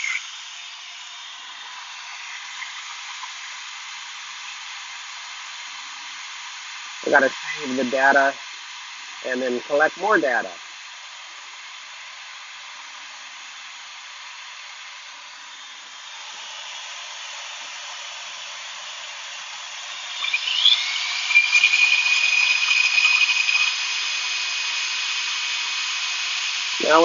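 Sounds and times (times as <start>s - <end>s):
electric drill whining: 0.0s - 5.8s, 14.9s - 27.0s
shop vac running: 0.0s - 27.0s.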